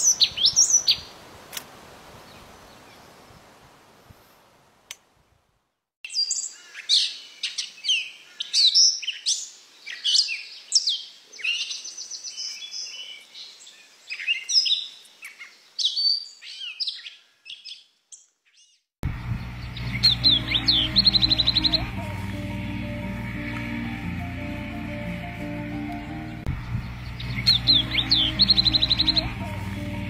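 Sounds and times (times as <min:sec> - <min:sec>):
songbird singing: 0:00.0 - 0:01.2, 0:06.0 - 0:30.0
bird chirps: 0:19.4 - 0:21.8, 0:25.9 - 0:29.3
background music: 0:19.6 - 0:30.0.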